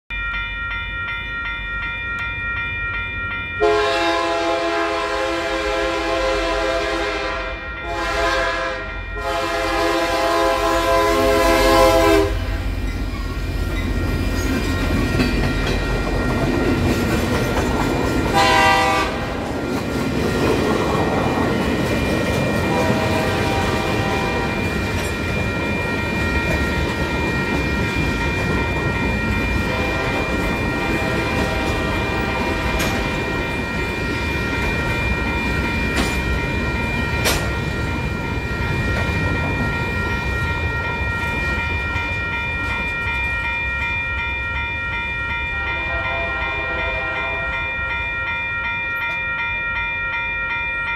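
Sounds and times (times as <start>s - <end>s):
crossing bell ringing: 0.1s - 50.9s
locomotive air horn: 3.6s - 12.6s, 18.3s - 19.4s, 22.7s - 24.5s, 29.7s - 33.2s, 45.6s - 47.5s
freight cars clickety-clack: 12.9s - 43.4s.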